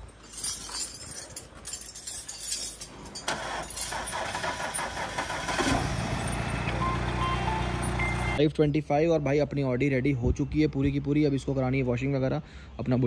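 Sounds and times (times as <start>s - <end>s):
car engine idling: 3.3s - 8.4s
car engine starting with rattling: 3.3s - 8.4s.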